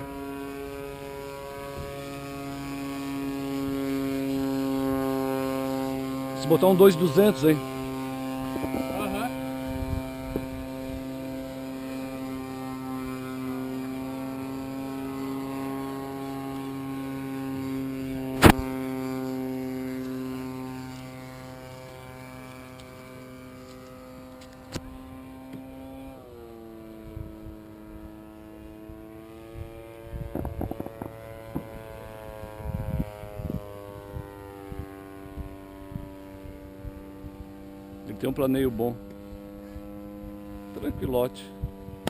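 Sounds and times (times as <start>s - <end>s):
model airplane motor whine: 0.0s - 42.0s
sharp loud click: 18.4s - 18.6s.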